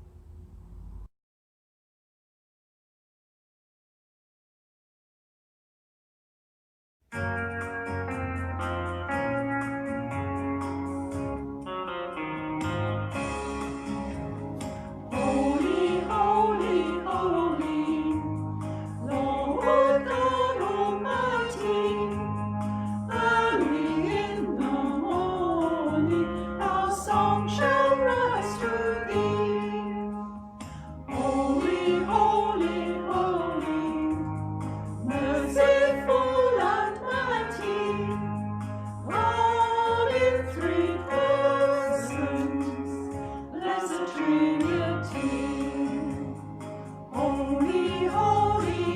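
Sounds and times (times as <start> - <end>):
group singing worship song: 15.1 - 48.9.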